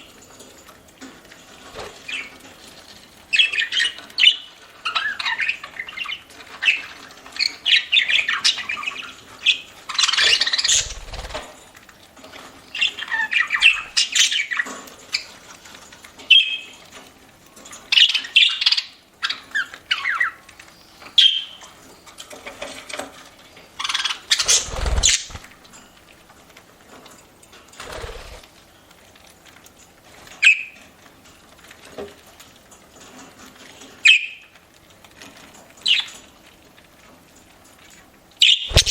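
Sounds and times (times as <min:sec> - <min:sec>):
budgerigars chirping and squawking: 0:03.4 - 0:11.4, 0:12.7 - 0:15.3, 0:23.8 - 0:25.5, 0:38.4 - 0:38.9.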